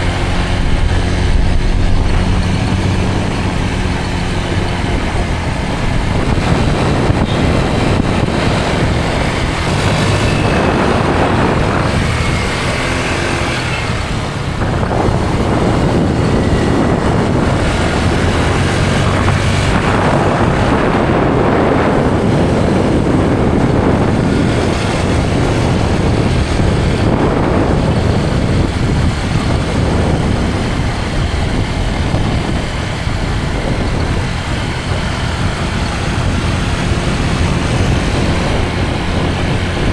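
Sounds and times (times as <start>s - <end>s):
motor scooter engine: 0.0s - 39.9s
wind on microphone: 0.0s - 39.9s.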